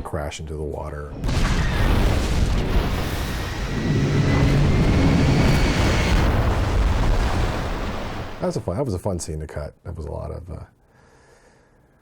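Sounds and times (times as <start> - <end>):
continuous rumble with blasts: 1.2 - 8.8.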